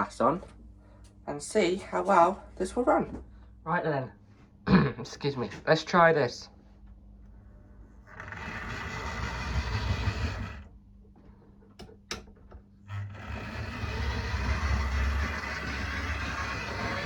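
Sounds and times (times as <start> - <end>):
model train motor whirring: 8.1 - 10.7, 12.9 - 17.0.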